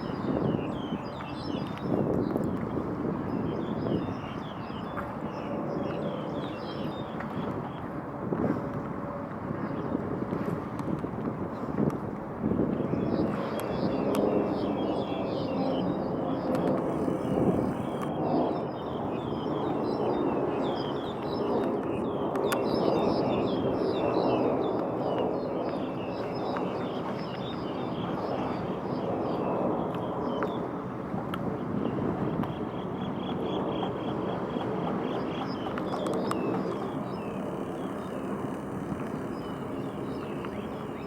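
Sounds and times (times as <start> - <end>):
small birds chirping: 35.1 - 41.0.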